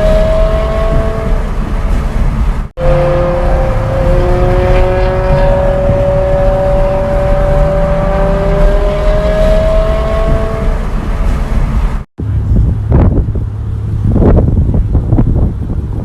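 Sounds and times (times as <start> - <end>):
car engines running: 0.0 - 16.0
rough engine rumble with surges: 0.0 - 16.0.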